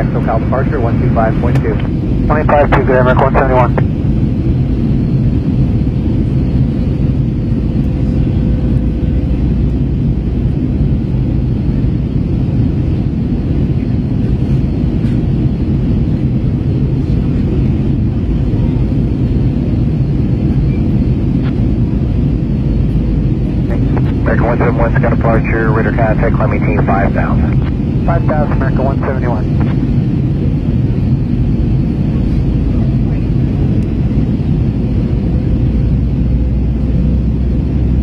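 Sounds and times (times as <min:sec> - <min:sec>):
jet engine roar in cabin: 0:00.0 - 0:38.0
faint steady hum: 0:23.7 - 0:30.2.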